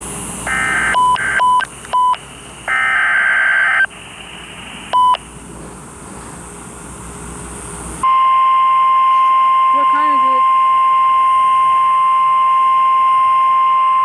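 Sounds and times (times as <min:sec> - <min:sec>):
radio hiss: 0:00.0 - 0:08.0
screeching data burst: 0:00.2 - 0:05.3
radio alert beeps: 0:00.5 - 0:05.3, 0:08.1 - 0:12.0.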